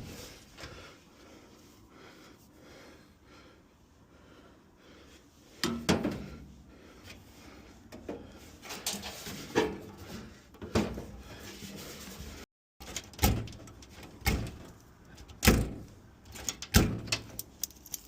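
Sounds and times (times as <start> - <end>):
sheet metal clunking and scraping: 8.0 - 12.2.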